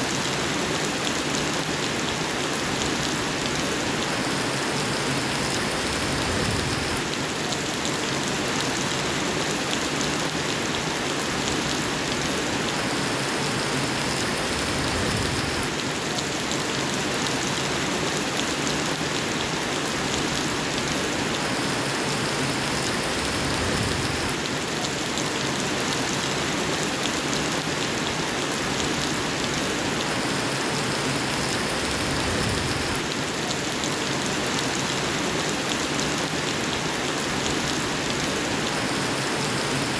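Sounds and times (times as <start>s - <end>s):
heavy rain hissing: 22.4s - 24.4s, 30.0s - 33.4s.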